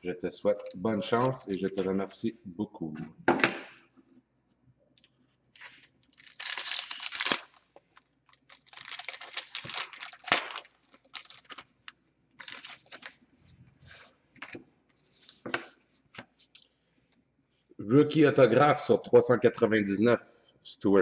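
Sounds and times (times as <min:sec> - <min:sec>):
card pack wrapper tearing and crinkling: 0:05.6 - 0:11.8, 0:12.4 - 0:13.2.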